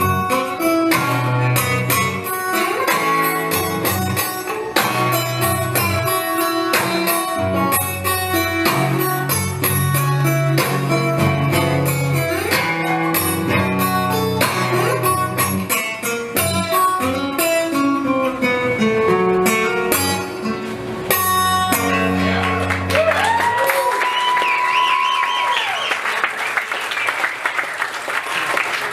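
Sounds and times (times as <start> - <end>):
acoustic guitar blues playing: 0.0 - 23.2
audience cheering: 21.9 - 28.9.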